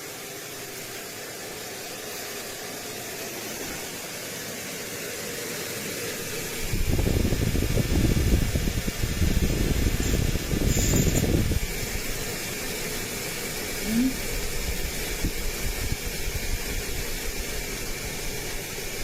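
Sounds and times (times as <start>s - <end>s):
fan airy hiss: 0.0s - 19.0s
airflow buffeting microphone: 6.2s - 19.0s.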